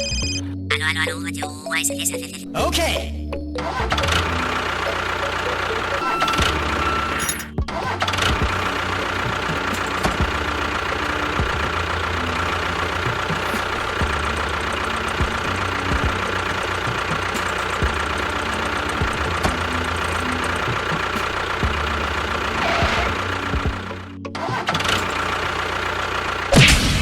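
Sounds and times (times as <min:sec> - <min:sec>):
high whine: 0:03.7 - 0:24.3
engine knocking: 0:03.7 - 0:26.6.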